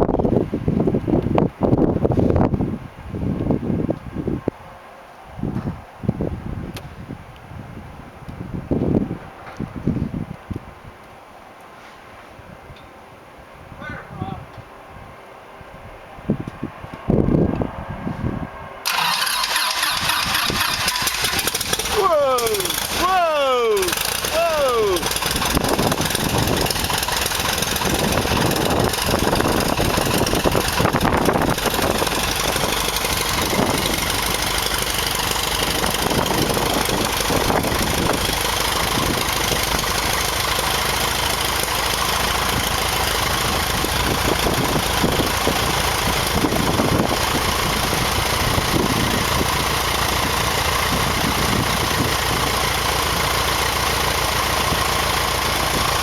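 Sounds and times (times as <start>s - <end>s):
aircraft piston engine idling: 18.8s - 56.0s.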